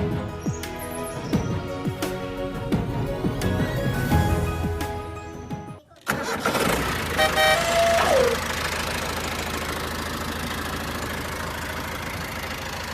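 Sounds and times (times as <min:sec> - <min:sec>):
engine running steadily: 0:06.1 - 0:12.9.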